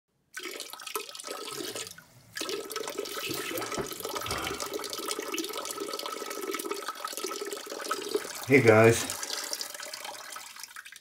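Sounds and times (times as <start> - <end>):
tap running into sink: 3.3 - 4.9.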